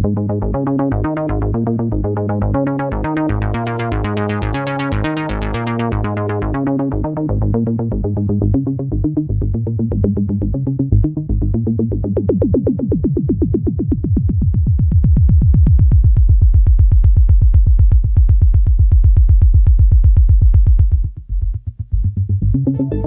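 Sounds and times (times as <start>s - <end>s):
deep synth bass line: 0.0s - 23.0s
synthesizer note sequence: 22.7s - 23.0s.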